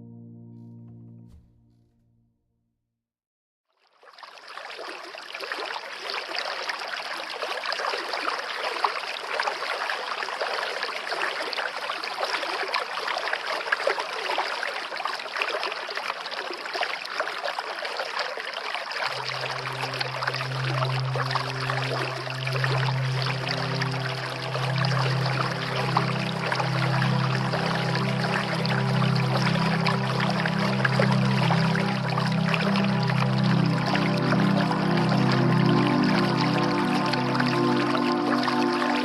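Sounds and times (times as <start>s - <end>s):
low held musical note: 0.0s - 2.2s, 19.1s - 39.0s
river water babbling: 4.1s - 39.0s.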